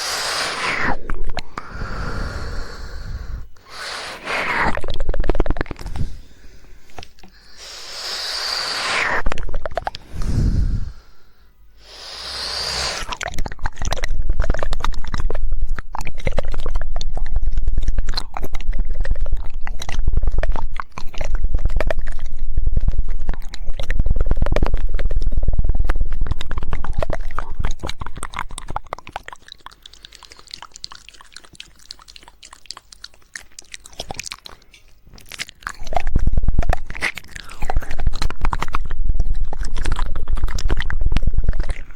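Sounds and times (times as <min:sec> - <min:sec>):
breathy blows into microphone: 0:00.0 - 0:13.2
rapid tongue clicking: 0:00.0 - 0:41.9.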